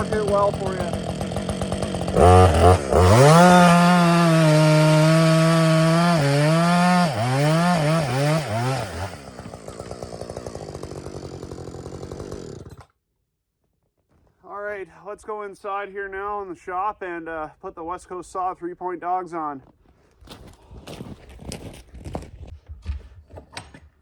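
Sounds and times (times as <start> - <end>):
chainsaw revving and idling: 0.0 - 12.9.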